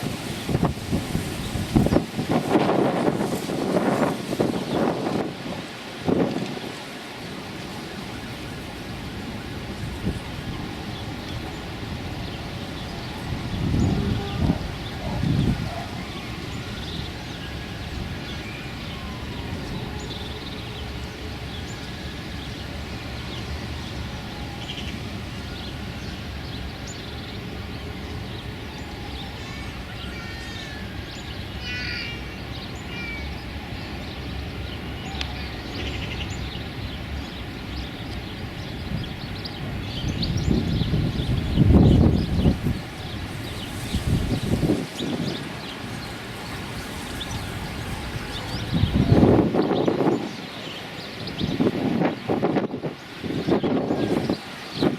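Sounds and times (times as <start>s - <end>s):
wind buffeting microphone: 0.0s - 30.0s, 32.3s - 54.9s
wind rumble: 0.0s - 30.0s, 30.8s - 54.9s
small birds chirping: 25.6s - 52.3s.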